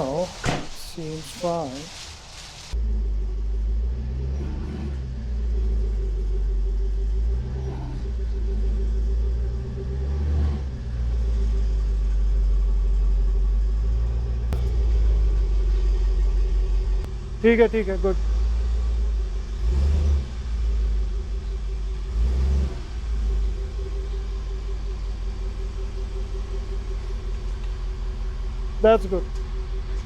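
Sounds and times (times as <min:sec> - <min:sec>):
car engine rumbling: 0:00.0 - 0:30.0
faint hum: 0:02.8 - 0:30.0.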